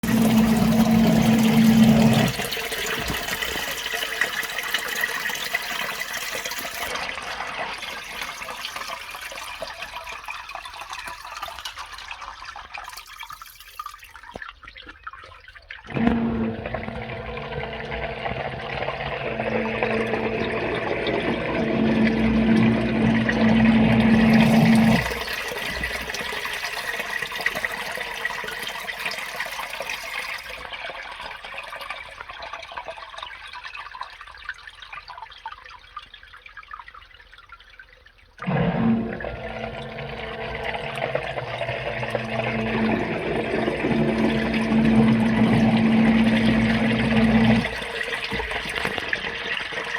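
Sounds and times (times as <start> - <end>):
sump pump motor humming: 0.0 - 3.9, 15.9 - 27.8, 38.4 - 49.9
water trickling: 0.0 - 49.9
water splashing: 13.1 - 26.6, 38.4 - 49.9.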